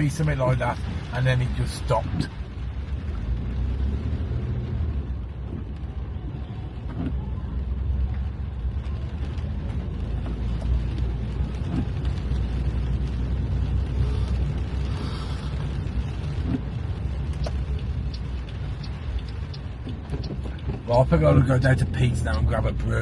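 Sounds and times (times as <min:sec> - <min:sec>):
car engine rumble: 0:00.0 - 0:23.0
road noise inside car: 0:00.0 - 0:23.0
faint ticks: 0:15.2 - 0:22.5.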